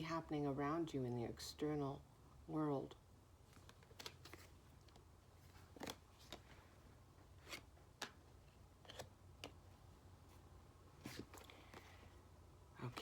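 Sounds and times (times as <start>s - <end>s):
low steady hum: 0.0s - 13.0s
cards clicking and tapping: 3.5s - 6.7s, 7.4s - 9.9s.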